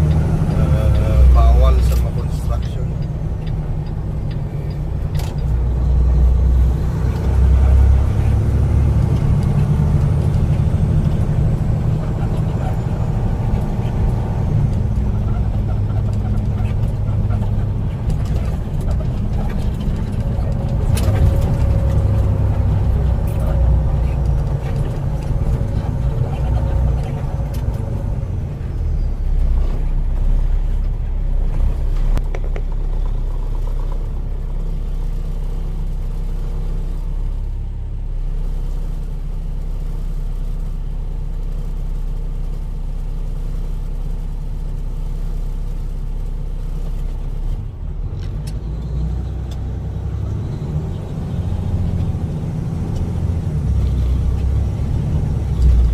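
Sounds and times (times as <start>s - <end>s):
diesel truck engine rumbling: 0.0s - 55.9s.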